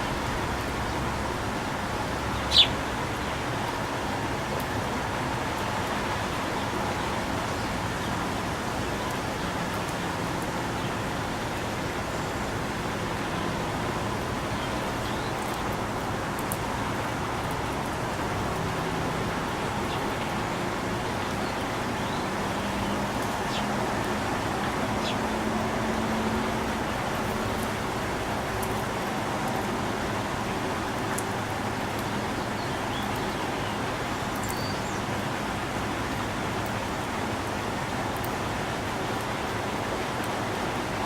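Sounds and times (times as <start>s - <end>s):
traffic hum: 0.0s - 41.0s.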